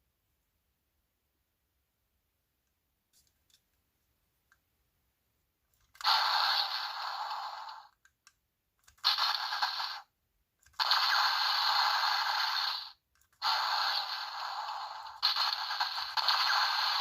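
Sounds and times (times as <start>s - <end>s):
toy speaker explosion effects: 6.0s - 7.9s, 9.0s - 10.1s, 10.8s - 17.0s.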